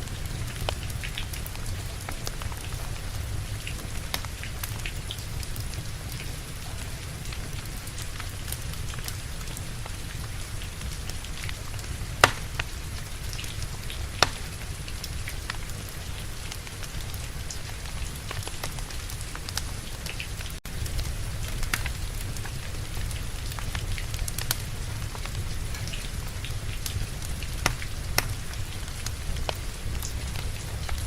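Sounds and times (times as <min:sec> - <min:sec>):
steady rain: 0:00.0 - 0:31.0
wood fire crackling and popping: 0:00.0 - 0:31.0.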